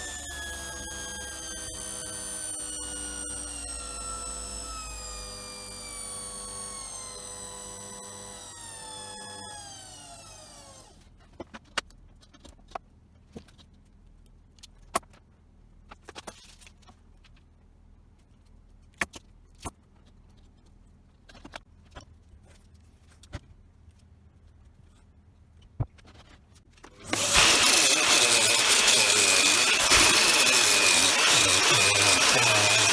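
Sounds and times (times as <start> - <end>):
treadmill motor spinning down: 0.0 - 11.0, 27.0 - 32.9.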